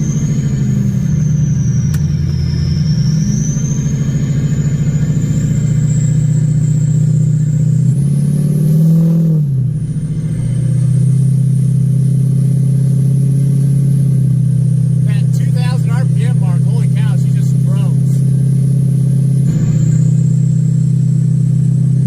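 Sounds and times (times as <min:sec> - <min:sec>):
turbo whistle: 0:00.0 - 0:07.5
diesel engine under load: 0:00.0 - 0:22.0.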